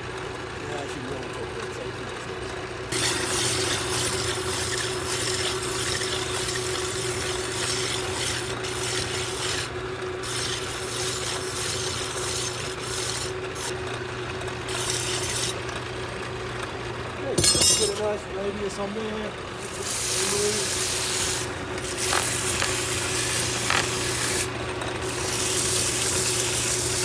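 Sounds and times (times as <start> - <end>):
hand file rasping on metal: 2.9 - 13.8, 14.7 - 15.6, 19.6 - 27.0
lathe motor humming: 2.9 - 17.2, 18.3 - 27.0.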